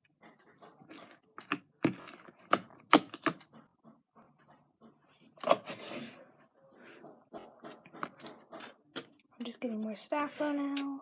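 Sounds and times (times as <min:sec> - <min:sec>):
wet slime squish: 0:00.6 - 0:03.4
slime popping and clicking: 0:00.9 - 0:03.4.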